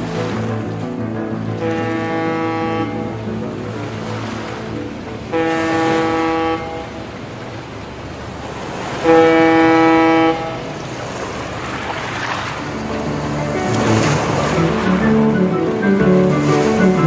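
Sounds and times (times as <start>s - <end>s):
low drone: 0.0s - 8.6s, 12.6s - 17.0s
long horn blasts: 1.6s - 3.3s, 5.2s - 7.0s, 9.0s - 10.8s.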